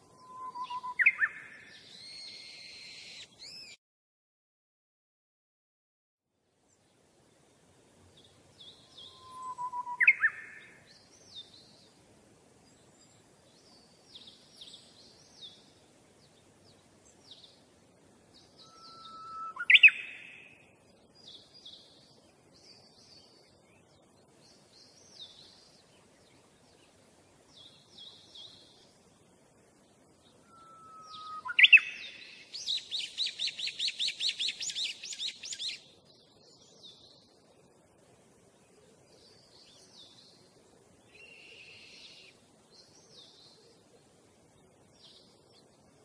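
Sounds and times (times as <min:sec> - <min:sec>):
small birds twittering: 0:00.0 - 0:03.8, 0:08.0 - 0:46.0
loud whistled bird call: 0:00.1 - 0:03.8, 0:08.8 - 0:10.6, 0:18.6 - 0:20.5, 0:30.4 - 0:35.8.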